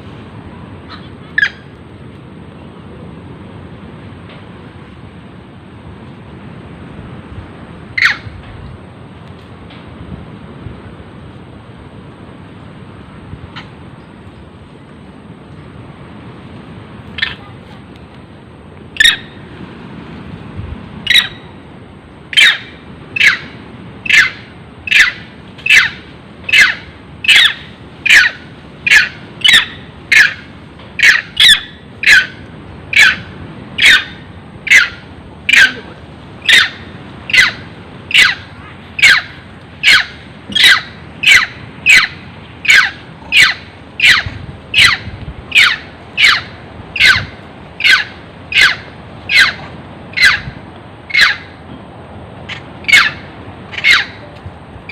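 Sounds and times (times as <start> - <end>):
monkey screaming: 8.0 - 8.3, 17.2 - 17.5, 19.0 - 19.4, 21.0 - 21.4, 22.3 - 51.6, 52.4 - 54.2.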